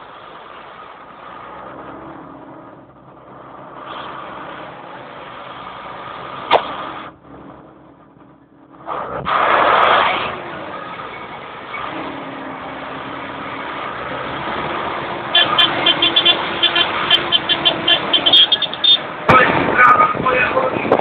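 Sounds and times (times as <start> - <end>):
tractor engines running: 0.0 - 21.0.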